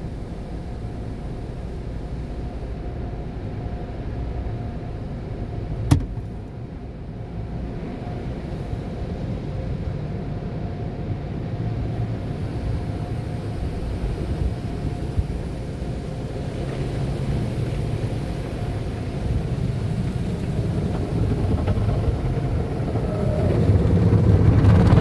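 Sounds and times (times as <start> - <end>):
car wash low rumble: 0.0 - 25.0
sharp knock: 5.9 - 6.3.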